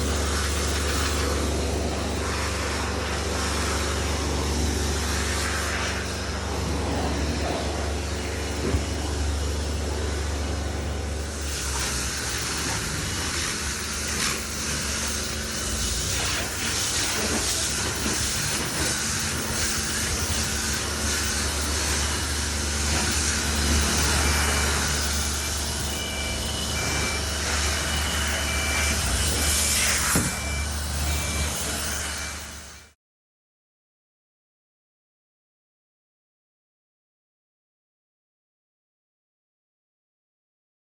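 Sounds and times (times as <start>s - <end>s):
vehicle engine drone: 0.0s - 33.0s
short beeps: 5.9s - 33.0s.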